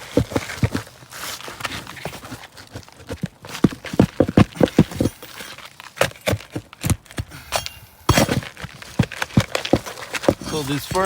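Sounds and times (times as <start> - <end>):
tool scraping and clinking: 3.6 - 6.6, 7.3 - 11.0
roof shingles cracking: 8.2 - 11.0.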